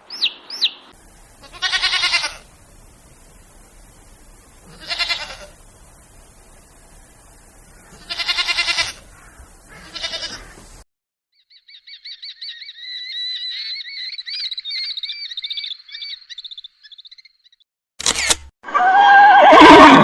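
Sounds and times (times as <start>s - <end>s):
bird chirping song: 0.0s - 1.5s, 11.3s - 17.6s
steady background hiss: 0.0s - 10.8s
goat bleating: 1.4s - 2.5s, 4.7s - 5.6s, 8.0s - 9.0s, 9.7s - 10.6s.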